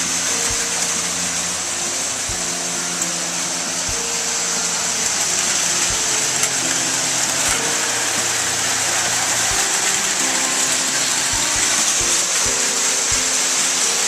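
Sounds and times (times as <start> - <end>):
music of held notes: 0.0 - 14.0
toy trains whirring on track: 0.0 - 14.0.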